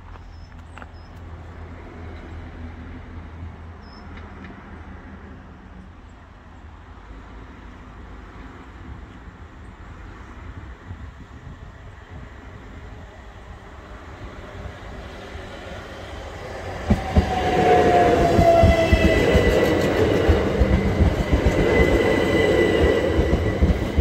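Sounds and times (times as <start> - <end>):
approaching train rumble and hiss: 0.0 - 24.0
road traffic: 0.0 - 24.0.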